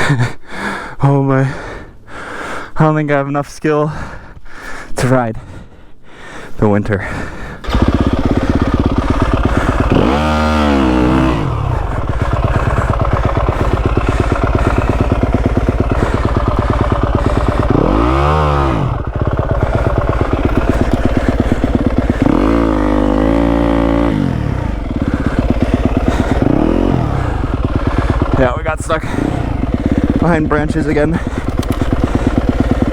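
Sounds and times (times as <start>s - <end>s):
dirt bike engine revving: 7.6s - 32.9s.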